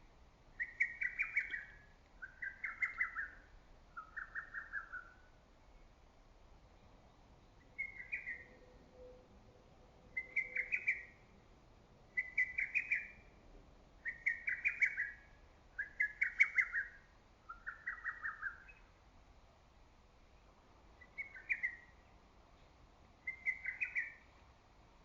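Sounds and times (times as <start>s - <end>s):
cuckoo singing whistled notes: 0.6s - 5.3s, 7.6s - 8.6s, 10.2s - 11.2s, 12.2s - 13.3s, 14.0s - 18.9s, 21.0s - 22.0s, 23.3s - 24.2s.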